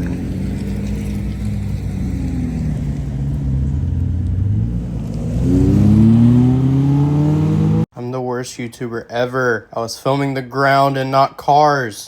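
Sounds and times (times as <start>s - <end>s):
car engine accelerating: 0.0s - 7.9s.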